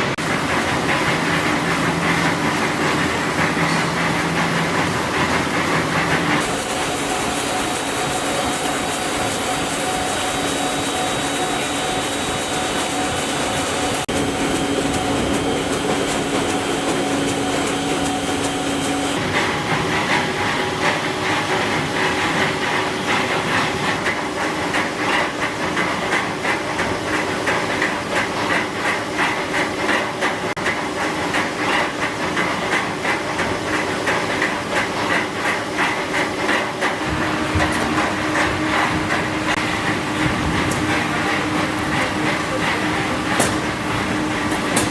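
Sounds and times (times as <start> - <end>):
machinery hissing and humming: 0.0 - 44.9
machine pulsing unevenly: 0.2 - 25.1, 36.8 - 44.9.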